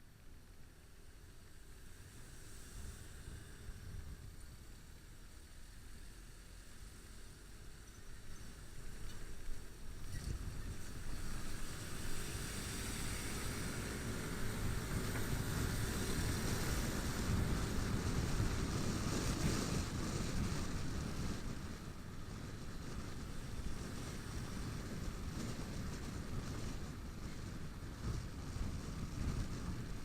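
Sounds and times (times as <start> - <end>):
road rumble: 0.0 - 30.0
wind rushing over microphone: 8.6 - 30.0.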